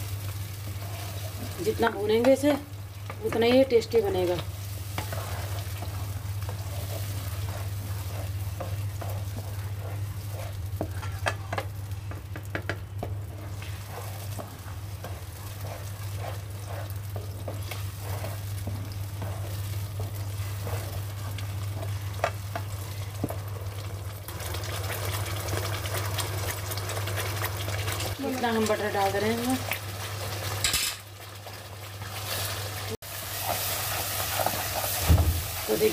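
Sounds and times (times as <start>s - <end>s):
food sizzling in oil: 0.0s - 35.9s
spatula scraping a pan: 3.3s - 11.7s, 13.3s - 23.0s, 29.3s - 35.9s.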